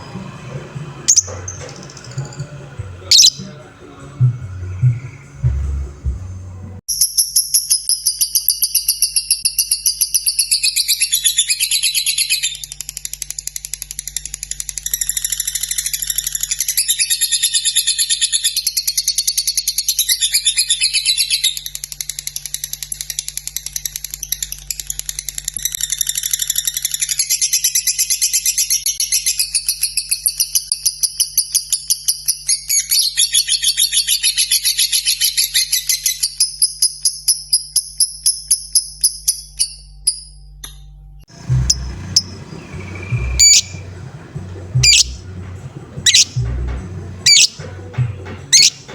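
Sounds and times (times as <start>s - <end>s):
lovebird chattering trills: 1.1s - 2.4s, 3.1s - 3.6s, 41.3s - 46.6s, 47.2s - 47.6s, 48.5s - 48.8s.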